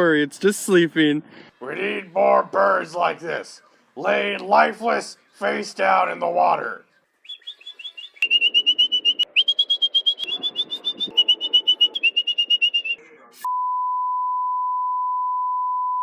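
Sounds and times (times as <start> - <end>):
songbird trilling: 7.2 - 13.0.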